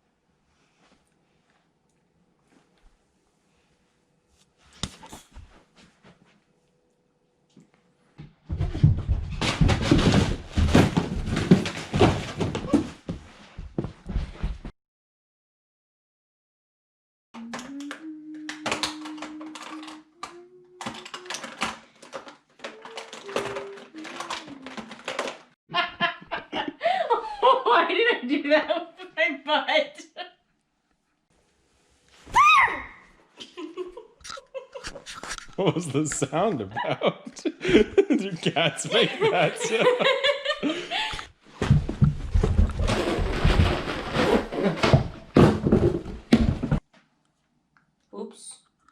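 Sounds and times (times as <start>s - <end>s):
person imitating a cat: 17.4s - 21.4s, 22.7s - 25.0s
woman laughing: 25.7s - 28.8s, 33.4s - 35.0s, 35.6s - 41.3s.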